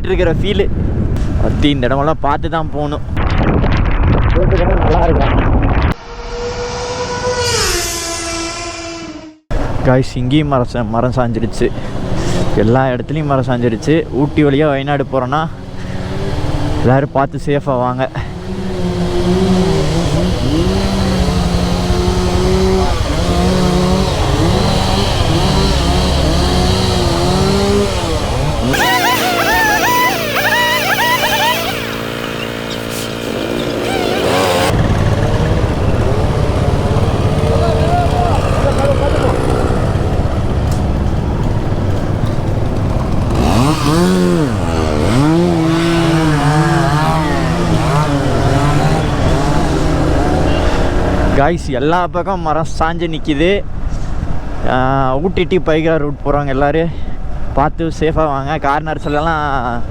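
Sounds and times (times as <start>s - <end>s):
wind rumble: 0.5s - 9.9s, 31.8s - 50.2s
motorcycle engine running: 18.3s - 51.4s.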